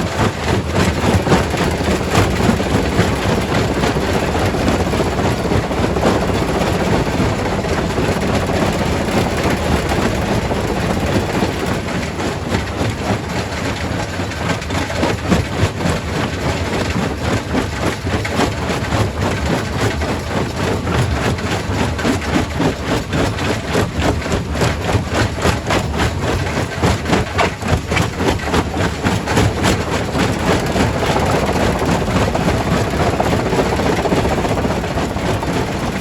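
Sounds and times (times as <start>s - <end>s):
rock crusher drone: 0.0s - 12.6s, 28.1s - 36.0s.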